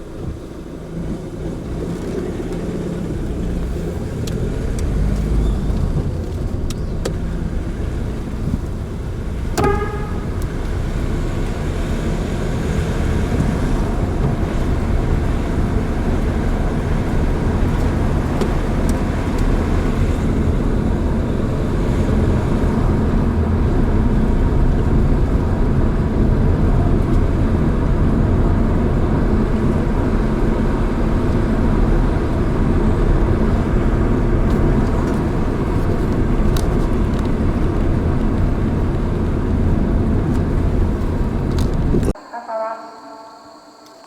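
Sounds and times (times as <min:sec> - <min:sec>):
vehicle road rumble: 0:00.0 - 0:42.8.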